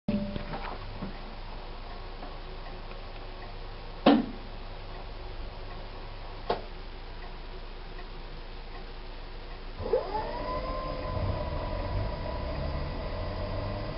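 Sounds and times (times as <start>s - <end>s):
washing machine humming: 0.1s - 2.9s, 8.4s - 13.9s.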